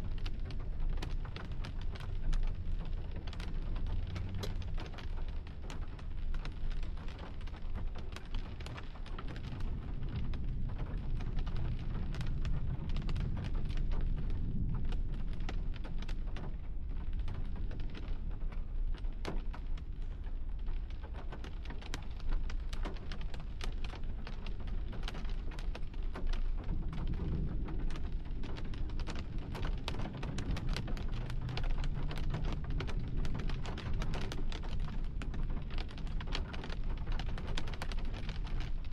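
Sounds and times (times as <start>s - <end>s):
rain on a hard surface: 0.0s - 38.9s
storm wind: 0.0s - 38.9s
thunder rumble: 9.1s - 22.0s, 24.0s - 38.9s.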